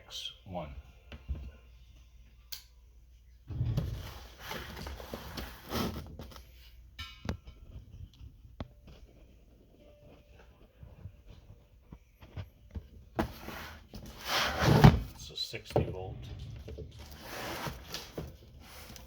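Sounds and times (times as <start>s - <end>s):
knocks and clunks: 3.5s - 4.9s, 14.6s - 18.6s.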